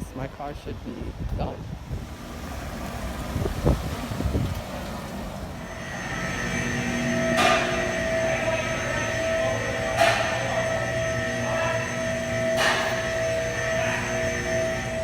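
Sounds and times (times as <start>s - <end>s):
machine hum with held tones: 1.9s - 15.0s.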